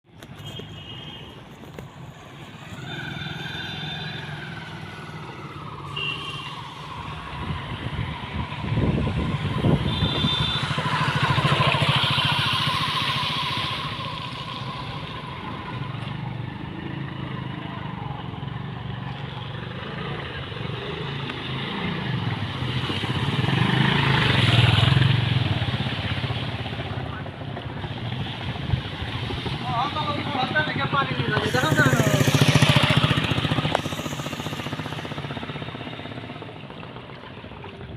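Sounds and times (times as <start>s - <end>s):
rush of noise: 2.0s - 17.1s, 23.0s - 37.9s
vehicle engine running: 30.4s - 37.9s.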